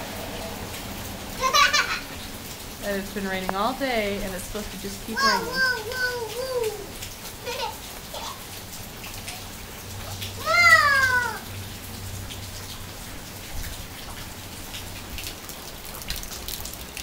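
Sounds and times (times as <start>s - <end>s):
rain falling and dripping: 0.0s - 17.0s
toddler high-pitched call: 5.2s - 8.4s, 10.4s - 11.4s.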